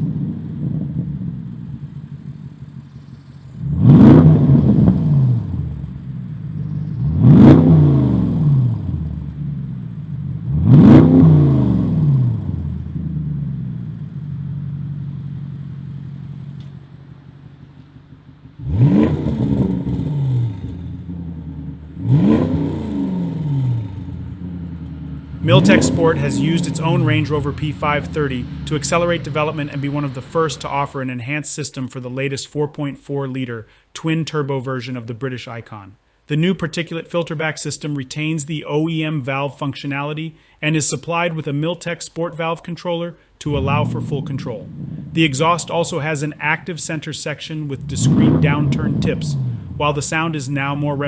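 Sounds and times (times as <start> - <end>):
car engine revving: 0.0 - 31.3, 43.4 - 51.0.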